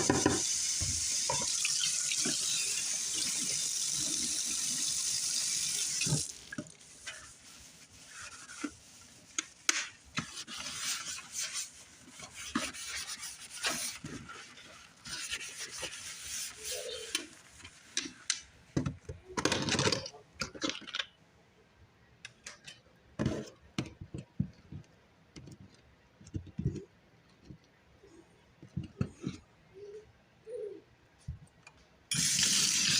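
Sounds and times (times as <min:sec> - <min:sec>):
kitchen tap running: 0:00.0 - 0:07.4, 0:32.1 - 0:32.9.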